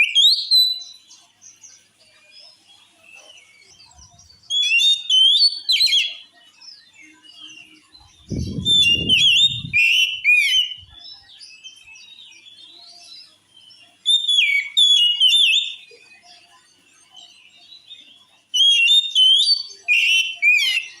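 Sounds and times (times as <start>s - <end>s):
bird singing whistled phrases: 0.0s - 1.0s, 3.2s - 12.8s, 13.8s - 16.2s, 17.9s - 21.0s
bird twittering: 3.2s - 6.4s, 7.0s - 12.2s, 13.7s - 15.9s, 18.0s - 21.0s.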